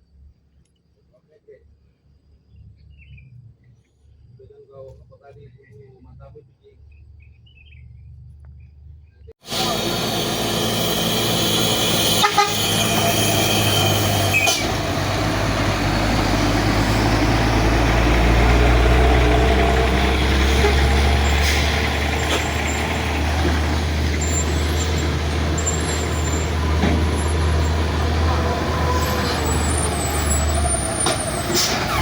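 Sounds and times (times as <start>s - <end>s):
diesel truck engine running: 9.4s - 32.0s.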